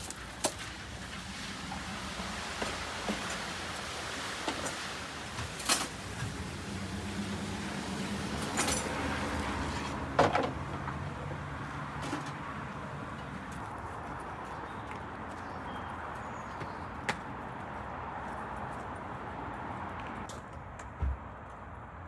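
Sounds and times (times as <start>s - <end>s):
knocks and clunks: 10.1s - 11.0s.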